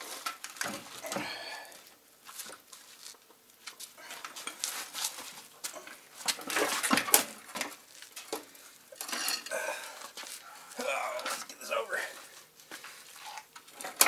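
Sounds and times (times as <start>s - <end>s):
metal clanking and scraping: 5.8s - 7.7s, 9.0s - 9.5s.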